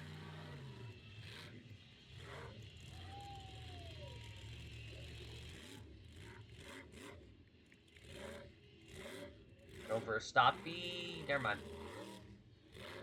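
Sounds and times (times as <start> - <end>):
faint monster truck engine rumble: 0.0 - 13.0.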